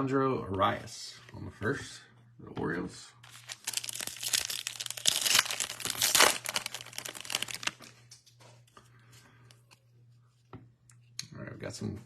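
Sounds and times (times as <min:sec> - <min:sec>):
foil wrapper tearing and crinkling: 0:03.3 - 0:08.0.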